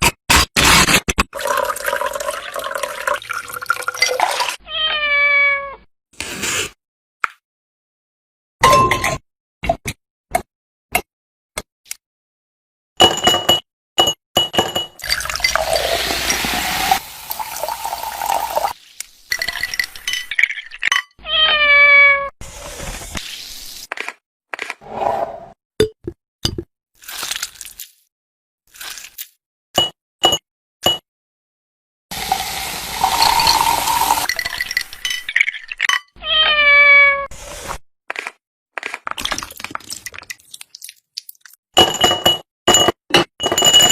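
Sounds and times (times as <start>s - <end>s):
liquid pouring: 1.4s - 4.6s, 15.0s - 20.9s, 32.1s - 35.9s, 39.2s - 41.6s
cat meowing: 4.6s - 5.8s, 21.2s - 22.3s, 36.2s - 37.3s
glass clinking: 13.0s - 16.4s, 19.3s - 21.1s, 33.0s - 36.1s, 41.8s - 43.9s
hissing rushing kitchen noise: 15.5s - 19.3s, 32.1s - 34.3s.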